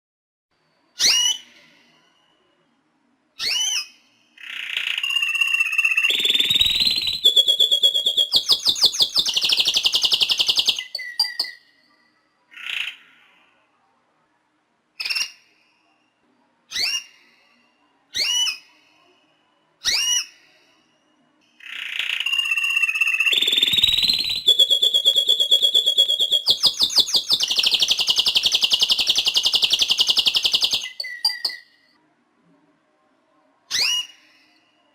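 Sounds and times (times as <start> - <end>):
canary singing trills: 1.0 - 2.5, 3.4 - 13.2, 16.7 - 17.5, 18.1 - 18.8, 19.8 - 20.5, 21.5 - 31.9, 33.7 - 34.6
short bird chirps: 3.4 - 13.0.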